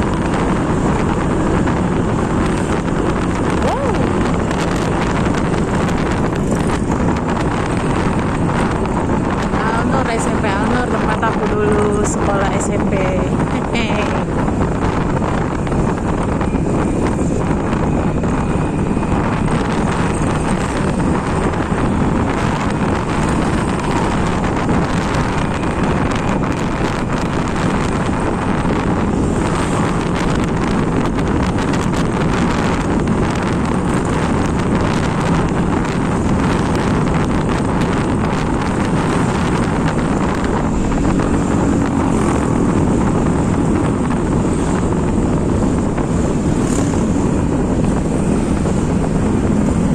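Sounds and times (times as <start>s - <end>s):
moving vehicle road noise: 0.0s - 49.9s
wind on microphone: 0.0s - 49.9s.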